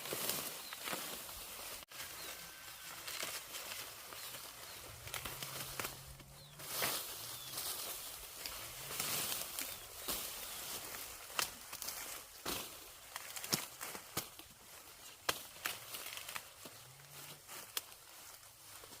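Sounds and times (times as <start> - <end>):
corn plants rustling and crackling: 0.0 - 19.0.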